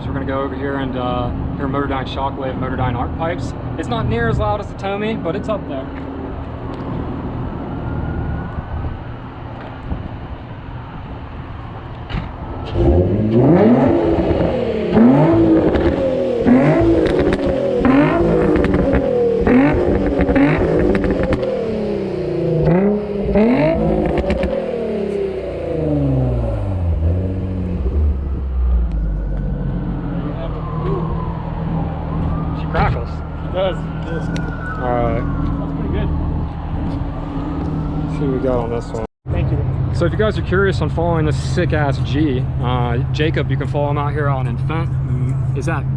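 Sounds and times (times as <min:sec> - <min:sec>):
car engine idling and revving: 0:00.0 - 0:45.9
exhaust crackles: 0:12.6 - 0:39.1.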